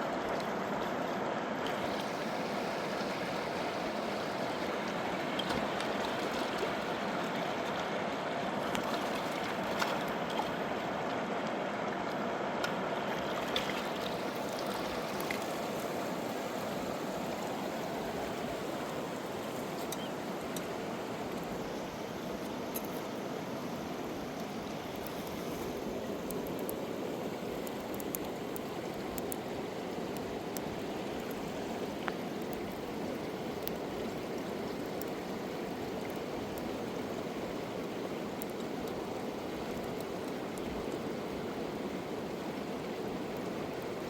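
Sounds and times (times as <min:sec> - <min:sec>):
river water rushing: 0:00.0 - 0:44.0
faint ticks: 0:19.7 - 0:20.7, 0:24.4 - 0:26.8, 0:27.5 - 0:29.4, 0:33.6 - 0:33.8.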